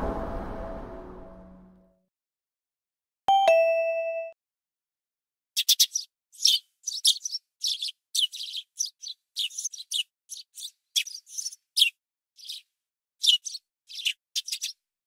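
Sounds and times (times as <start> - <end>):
small birds chirping: 5.6 - 14.9.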